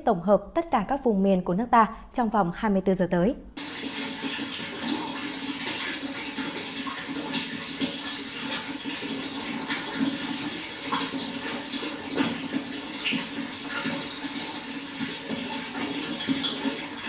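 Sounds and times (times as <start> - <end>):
flowing water splashing and gurgling: 3.6 - 17.0.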